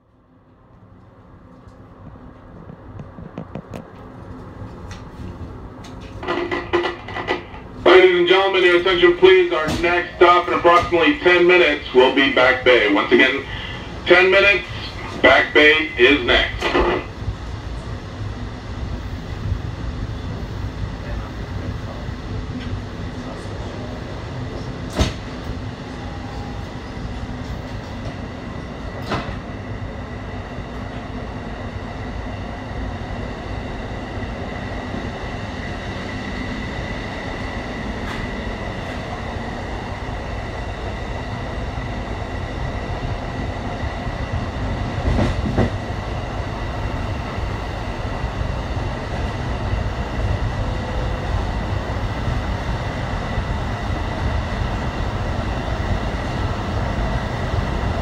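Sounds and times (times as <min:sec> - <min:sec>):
train wheels rumbling on track: 0:00.0 - 0:58.0
thin steady whine: 0:06.2 - 0:19.6.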